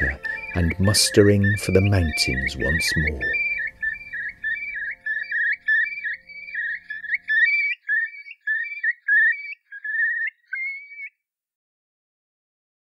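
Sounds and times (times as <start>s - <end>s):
viola and piano music: 0.0s - 7.5s
songbird warbling: 0.0s - 11.2s.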